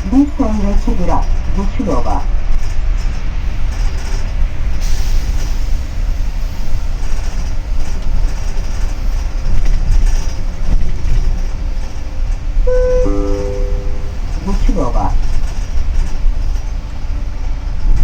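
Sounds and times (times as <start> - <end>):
bus engine and road rumble: 0.0 - 18.0
short electronic chime: 12.7 - 14.4.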